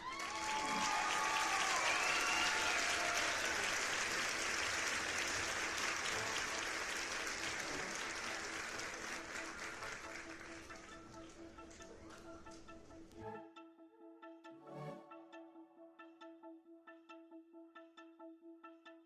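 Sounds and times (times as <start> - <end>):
applause: 0.0 - 12.6.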